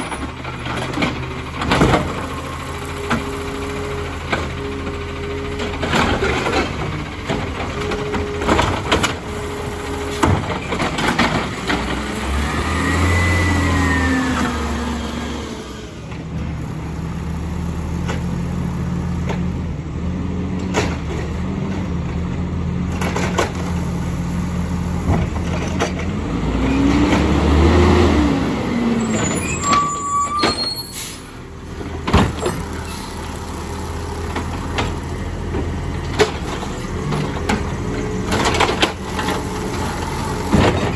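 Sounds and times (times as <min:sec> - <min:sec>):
garbage truck diesel engine revving: 0:00.0 - 0:40.9
air brakes hissing: 0:29.2 - 0:31.4.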